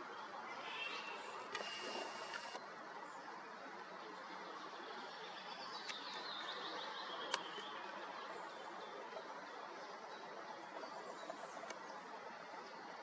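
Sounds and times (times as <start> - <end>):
background hiss: 0.4 - 2.6.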